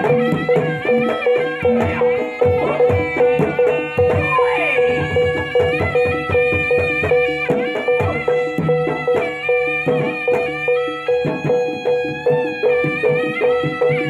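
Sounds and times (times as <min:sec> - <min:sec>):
hand drum beats: 0:00.0 - 0:14.0
reedy wind instrument melody: 0:00.0 - 0:14.0
high ringing note: 0:03.6 - 0:05.4.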